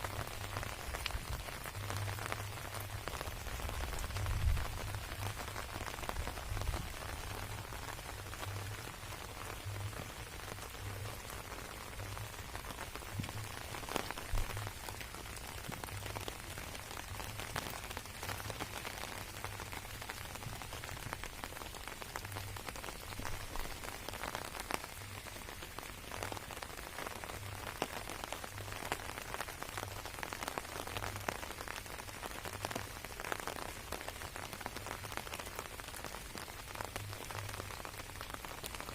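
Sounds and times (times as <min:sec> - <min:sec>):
rain pattering on plants: 0:00.0 - 0:38.9.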